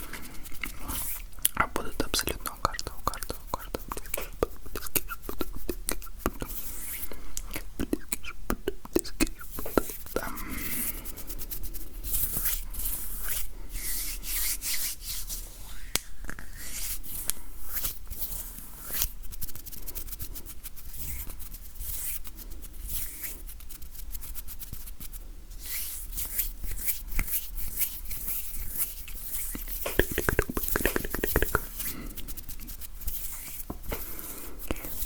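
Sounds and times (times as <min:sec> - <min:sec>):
hands rubbing together: 0:02.9 - 0:07.1, 0:09.0 - 0:35.0.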